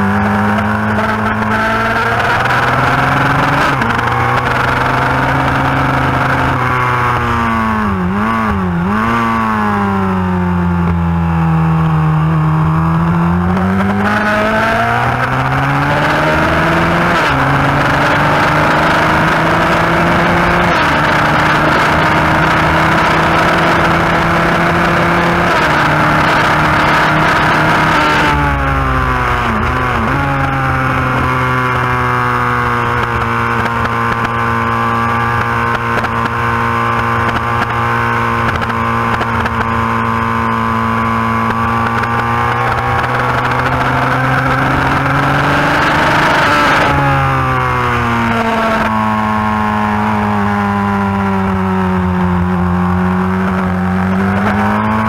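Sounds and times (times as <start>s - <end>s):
motorcycle engine running hard: 0.0s - 55.0s
wind rushing: 25.3s - 33.0s.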